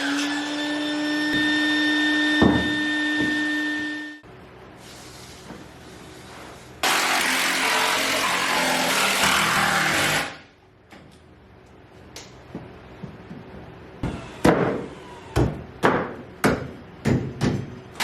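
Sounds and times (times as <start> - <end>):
hammering on wood: 2.4 - 3.4, 15.4 - 17.8
power tool running: 6.8 - 10.4.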